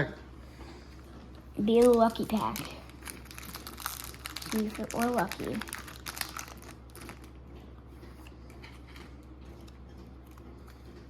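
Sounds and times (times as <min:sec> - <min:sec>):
low electrical hum: 0:00.0 - 0:11.0
cards and foil wrapper rustling: 0:01.6 - 0:07.4.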